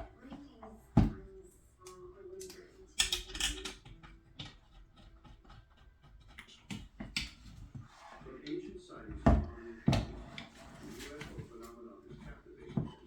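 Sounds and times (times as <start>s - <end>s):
hand tools clicking and rattling: 3.0s - 7.3s.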